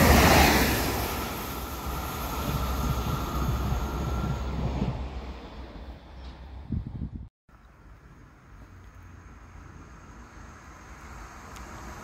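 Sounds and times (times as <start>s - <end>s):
passenger train running: 0.0s - 6.8s
faint steady whine: 0.8s - 4.8s.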